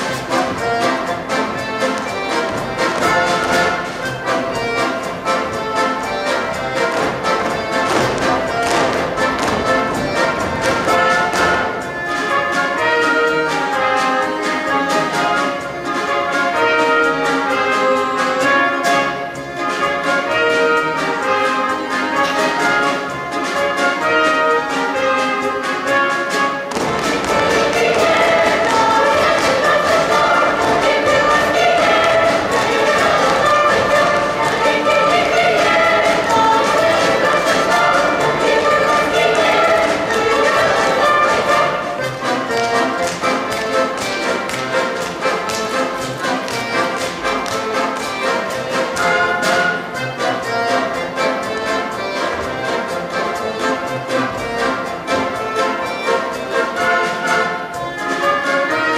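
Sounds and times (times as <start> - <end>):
dancers' feet thudding and tapping: 0.0 - 13.2, 26.6 - 57.3
orchestra playing dance tune: 0.0 - 58.9.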